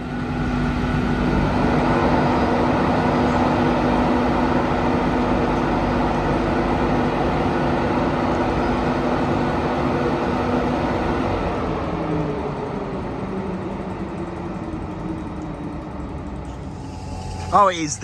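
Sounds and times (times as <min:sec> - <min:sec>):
train rumbling: 0:00.0 - 0:18.0
humming tones: 0:16.4 - 0:18.0.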